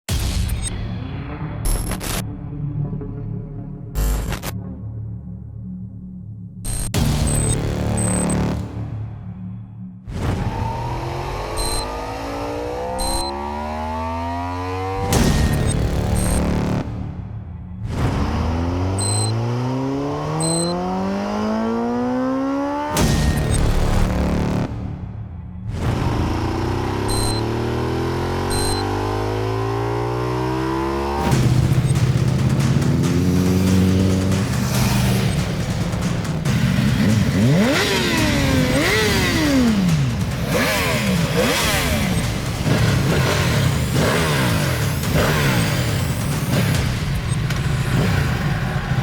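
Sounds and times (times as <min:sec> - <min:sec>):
motorcycle engine revving: 0:10.3 - 0:17.0, 0:17.8 - 0:24.8, 0:25.7 - 0:49.0.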